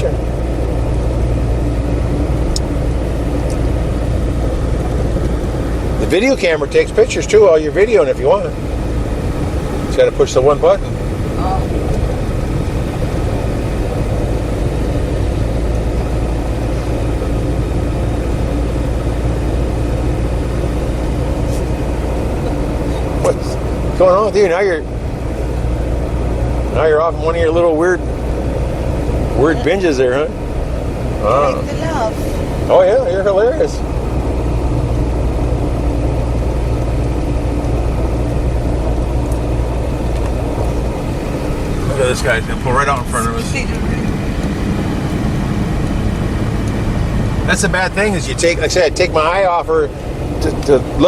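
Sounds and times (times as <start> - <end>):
engine hum: 0.0 - 51.0
wind and road noise: 0.0 - 51.0.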